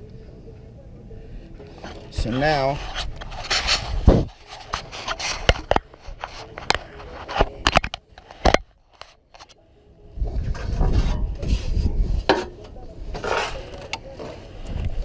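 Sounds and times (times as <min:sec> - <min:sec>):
scraping on metal: 0:01.8 - 0:09.5, 0:10.4 - 0:14.6.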